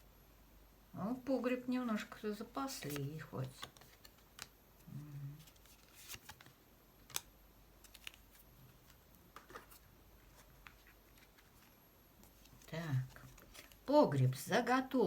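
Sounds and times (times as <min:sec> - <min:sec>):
tarot cards clicking and rustling: 0:02.0 - 0:13.9.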